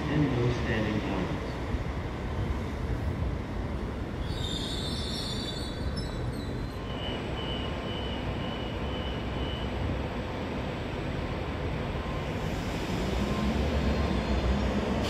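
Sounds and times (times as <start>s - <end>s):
passing train rumble: 0.0s - 15.0s
train wheels squealing: 4.2s - 9.9s.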